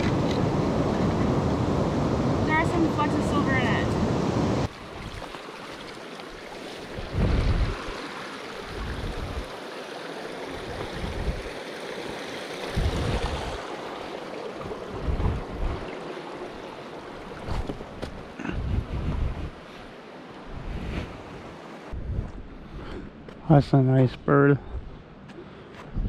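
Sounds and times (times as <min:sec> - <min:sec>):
flowing water rushing: 0:00.0 - 0:18.4
wind buffeting microphone: 0:07.0 - 0:08.0, 0:08.7 - 0:09.5, 0:10.7 - 0:11.5, 0:12.7 - 0:13.6, 0:14.6 - 0:16.0, 0:17.4 - 0:19.6, 0:21.9 - 0:22.8.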